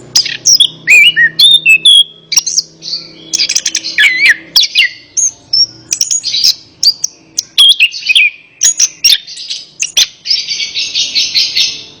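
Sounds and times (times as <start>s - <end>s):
bird chattering trill: 0.0s - 12.0s
bird singing whistled notes: 0.1s - 12.0s.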